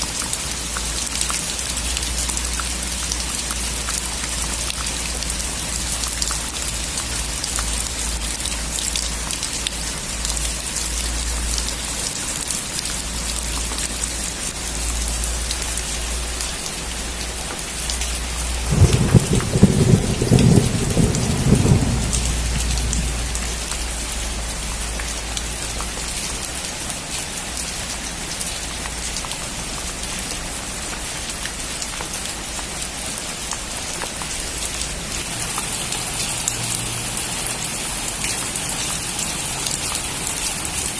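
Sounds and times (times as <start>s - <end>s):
heavy rain falling: 0.0s - 40.9s
thunder rumbling: 18.5s - 23.8s.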